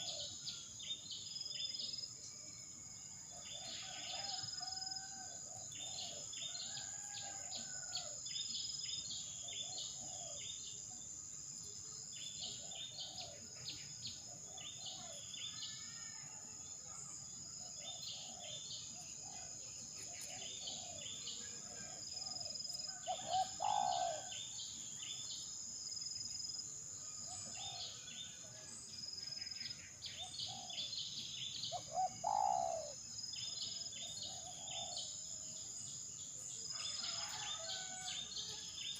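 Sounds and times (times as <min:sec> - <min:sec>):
birds chirping: 0:20.0 - 0:24.3, 0:30.0 - 0:34.9.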